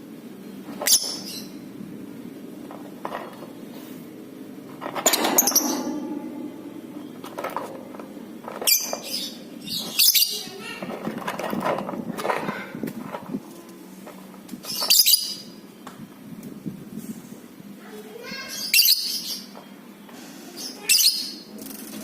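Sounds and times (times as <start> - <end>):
lovebirds chirping and chattering: 0.5 - 1.8, 8.6 - 11.1, 14.6 - 16.0, 18.1 - 21.6.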